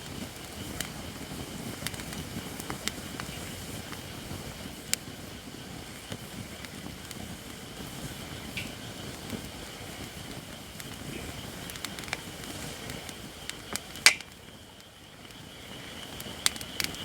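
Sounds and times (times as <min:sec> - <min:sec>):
fire crackles and pops: 0:00.0 - 0:17.0
low rush of flame: 0:00.0 - 0:17.0.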